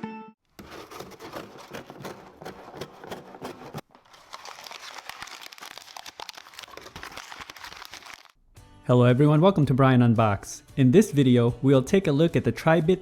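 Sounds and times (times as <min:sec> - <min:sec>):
packaging crinkling and rustling: 0:00.5 - 0:08.4.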